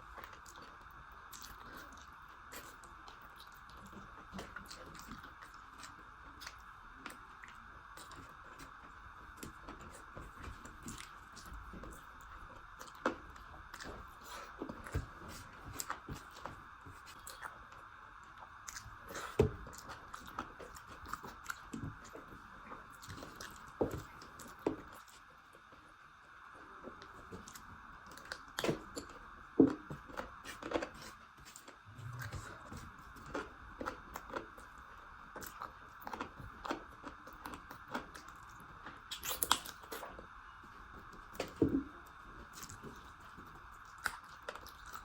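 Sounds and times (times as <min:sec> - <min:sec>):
person chewing and eating: 0:00.0 - 0:25.2, 0:27.0 - 0:45.0
food crunching: 0:27.3 - 0:40.3, 0:41.1 - 0:45.0.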